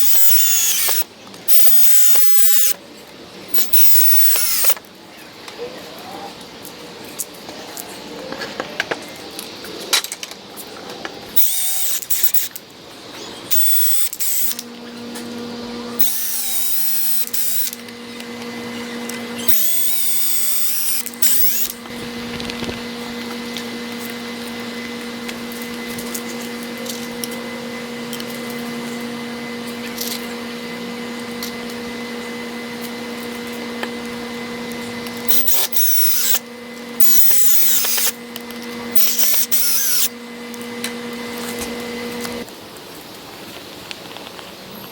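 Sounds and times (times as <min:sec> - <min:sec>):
power drill running in bursts: 0:00.0 - 0:02.8, 0:03.4 - 0:04.8, 0:11.3 - 0:42.5.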